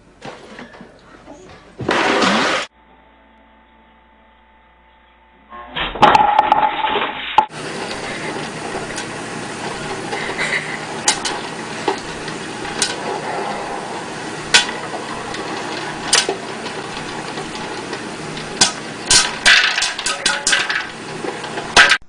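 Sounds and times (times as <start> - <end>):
sharp knocks and clatters: 6.0 - 22.0.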